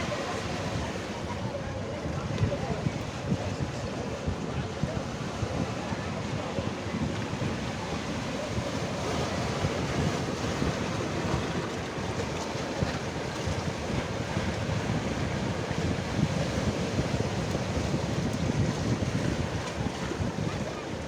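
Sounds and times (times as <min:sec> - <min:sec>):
waves washing on shore: 0:00.0 - 0:21.0
wind buffeting microphone: 0:00.0 - 0:21.0.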